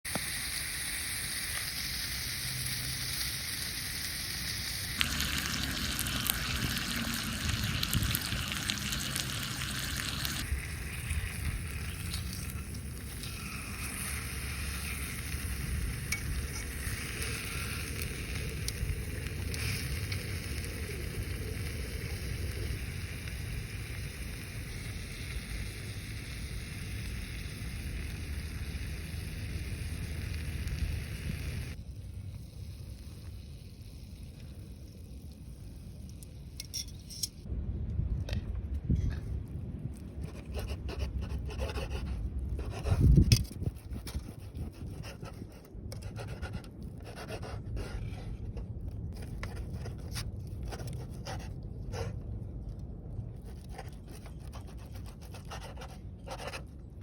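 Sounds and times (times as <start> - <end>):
wood fire sizzling and crackling: 0.1 - 38.1, 38.8 - 57.0
low rumble: 37.4 - 55.9.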